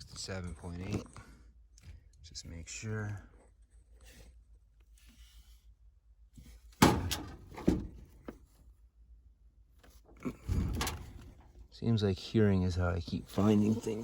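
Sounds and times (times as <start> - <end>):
knocks and thumps of handling: 6.4 - 8.6.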